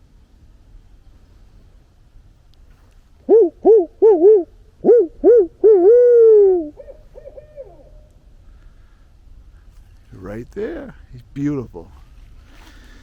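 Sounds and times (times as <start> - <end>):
owl hooting: 3.2 - 8.2.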